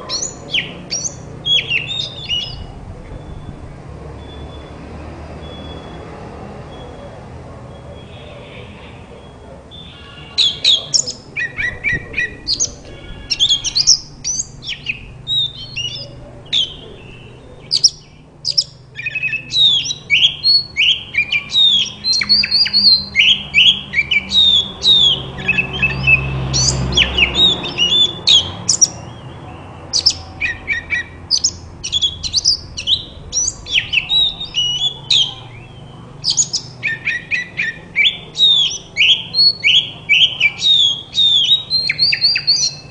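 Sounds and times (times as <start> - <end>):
bird singing whistles and chirps: 0.1 - 3.6, 9.2 - 42.9
low hum: 31.2 - 36.2.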